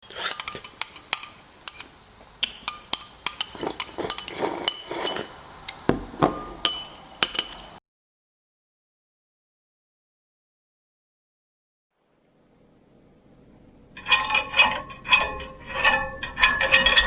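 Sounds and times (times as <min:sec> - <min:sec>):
bicycle metallic clinks: 0:00.1 - 0:02.1, 0:06.7 - 0:07.8.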